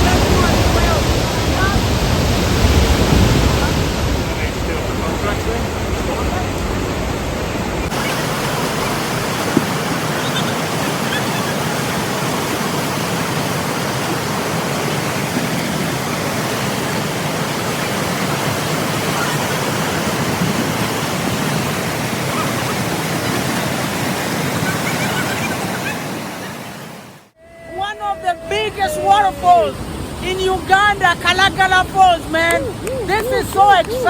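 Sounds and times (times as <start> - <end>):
waterfall rushing over rocks: 7.9 - 27.4.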